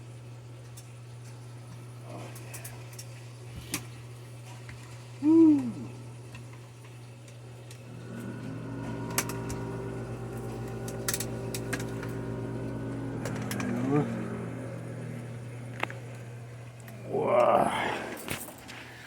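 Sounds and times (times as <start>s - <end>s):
well pump humming: 0.0s - 19.0s
person whooping: 5.2s - 6.0s, 17.0s - 18.2s.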